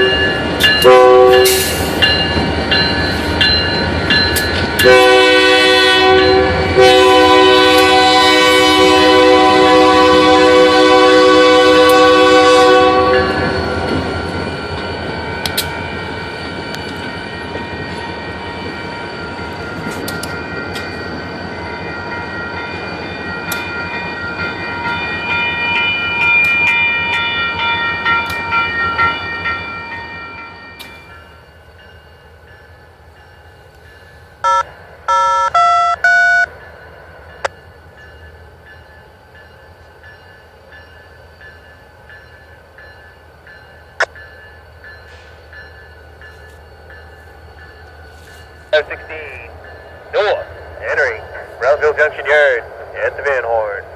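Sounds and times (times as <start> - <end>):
freight train rumbling past: 0.0 - 53.9
short beeping tones: 34.4 - 36.5.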